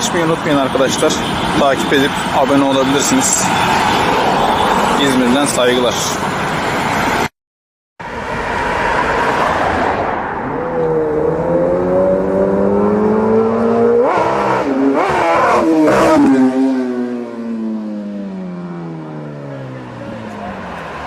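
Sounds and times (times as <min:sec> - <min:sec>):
motorcycle engine revving: 0:10.4 - 0:20.1.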